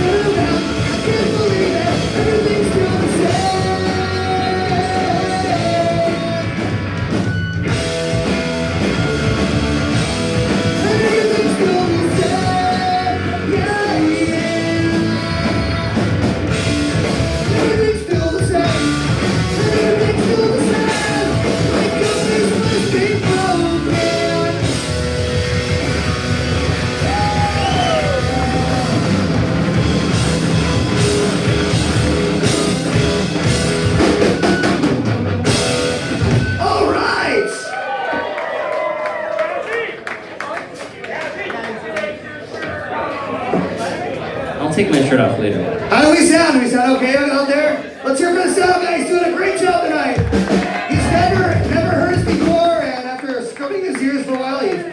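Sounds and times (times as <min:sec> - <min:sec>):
live punk rock band: 0:00.0 - 0:37.6, 0:48.3 - 0:54.0
person shouting lead vocal: 0:27.0 - 0:29.2, 0:36.6 - 0:37.7.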